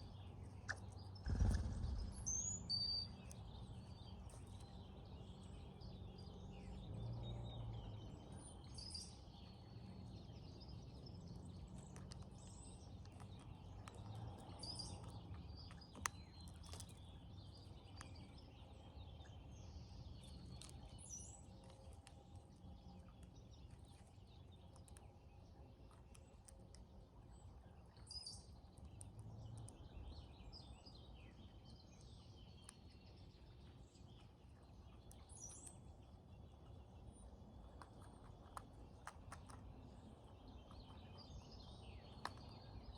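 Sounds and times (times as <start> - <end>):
low background rumble: 0.0 - 42.9
birds whistling and chirping: 0.6 - 4.2.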